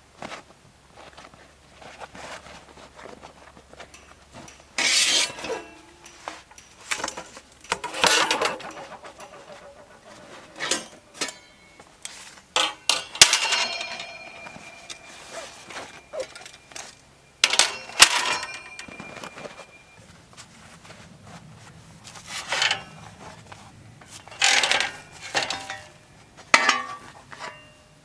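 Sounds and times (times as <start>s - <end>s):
gear rustling: 1.0s - 27.8s
small metal clinks: 3.0s - 20.9s, 22.1s - 28.0s
sharp metallic clank: 3.9s - 20.0s, 24.0s - 27.9s.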